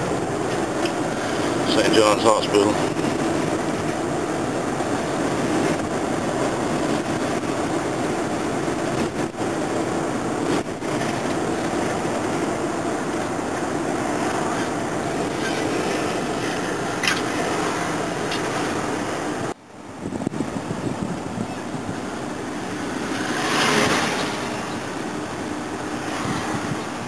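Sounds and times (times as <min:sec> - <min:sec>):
car road and engine noise: 0:00.0 - 0:27.0.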